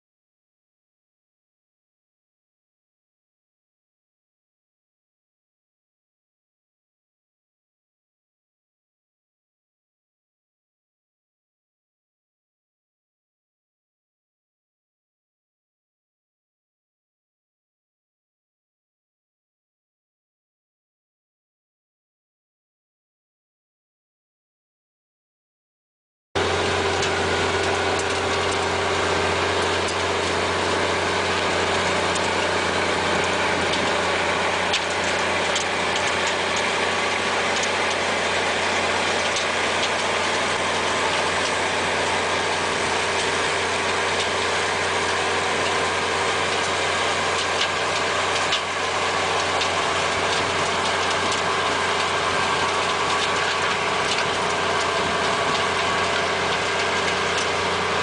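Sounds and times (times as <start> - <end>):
machine engine humming: 26.4 - 58.0.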